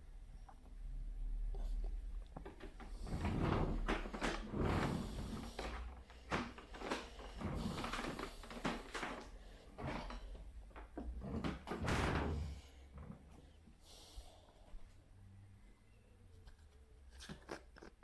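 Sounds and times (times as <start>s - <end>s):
knocks and bumps: 2.4s - 13.3s.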